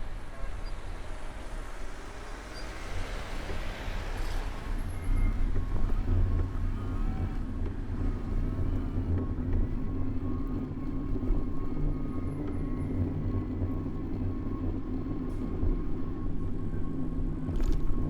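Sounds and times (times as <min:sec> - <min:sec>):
vehicle passing hiss: 0:00.0 - 0:05.2
road traffic rumble: 0:00.0 - 0:08.5.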